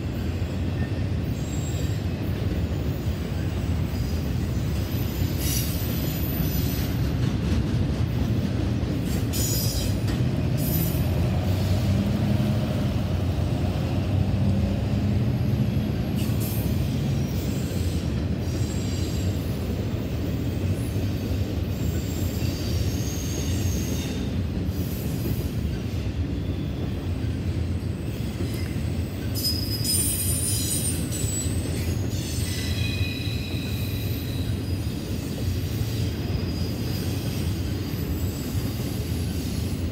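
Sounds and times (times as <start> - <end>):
freight train wheels rumbling: 0.0 - 39.9
high-pitched wheel squeals: 28.4 - 34.9.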